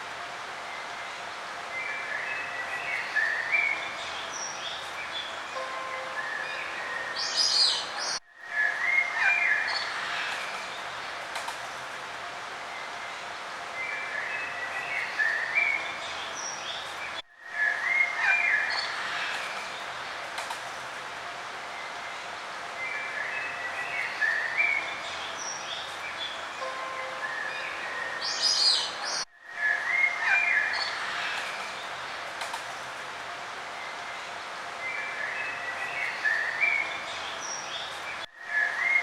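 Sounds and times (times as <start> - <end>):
outdoor background hiss: 0.0 - 39.0
small birds chirping and singing: 1.7 - 11.2, 13.8 - 20.2, 22.8 - 32.2, 33.8 - 39.0.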